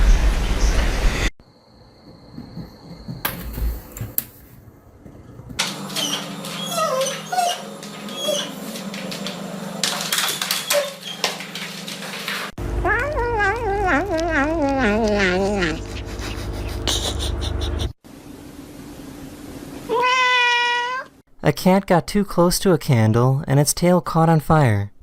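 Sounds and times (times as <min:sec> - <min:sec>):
steady low hum: 0:01.1 - 0:06.6.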